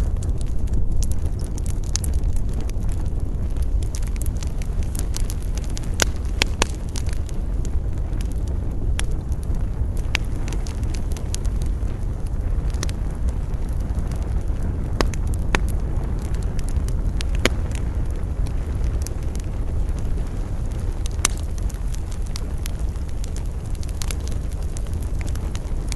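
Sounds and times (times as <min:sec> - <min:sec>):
campfire crackling and popping: 0:00.0 - 0:25.9
low rumble of wind: 0:00.0 - 0:25.9.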